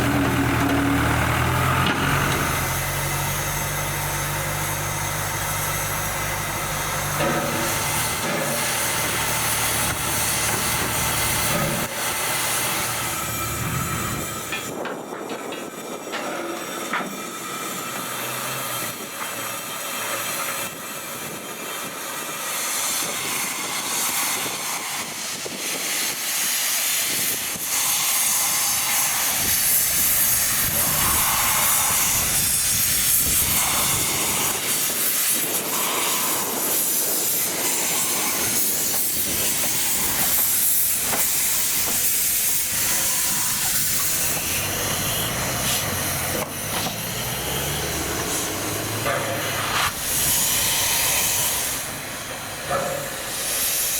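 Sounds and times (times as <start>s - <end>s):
steam hissing: 0.0s - 16.0s, 20.6s - 53.9s
rumble of rolling train: 0.0s - 53.9s.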